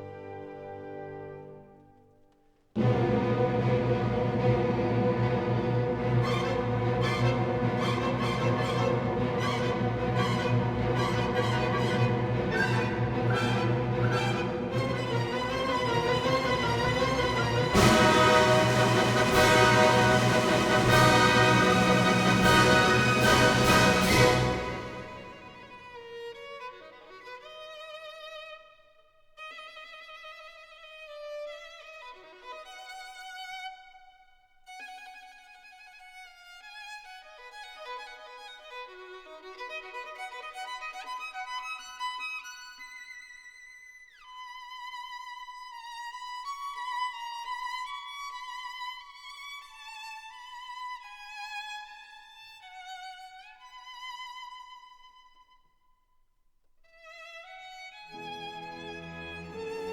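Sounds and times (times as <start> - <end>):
solo violin melody: 5.0 - 28.8, 34.6 - 43.4, 56.9 - 59.9.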